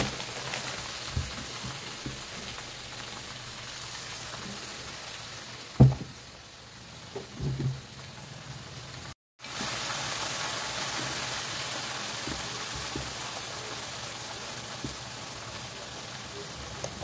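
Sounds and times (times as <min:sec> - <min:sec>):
food sizzling in a wok: 0:00.0 - 0:17.0
knock: 0:05.8 - 0:06.1.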